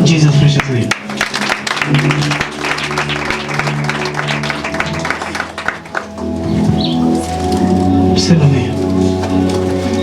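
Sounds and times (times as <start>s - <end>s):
church music with keyboard chords: 0.0s - 10.0s
congregation clapping: 0.2s - 7.5s.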